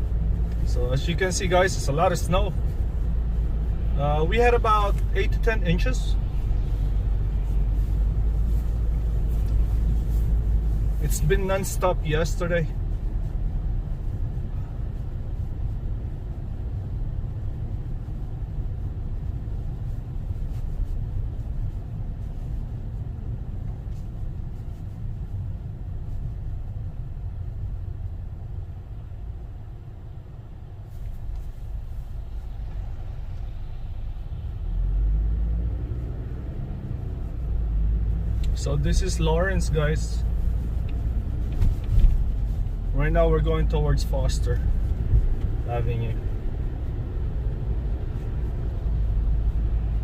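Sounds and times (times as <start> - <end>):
car engine rumble: 0.0 - 50.0.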